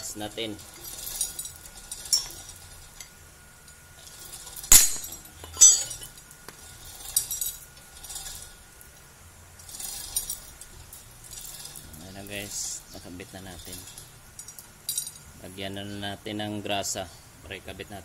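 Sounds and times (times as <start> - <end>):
metal-on-metal clinks and strikes: 0.0 - 3.1, 3.7 - 8.5, 9.6 - 15.3.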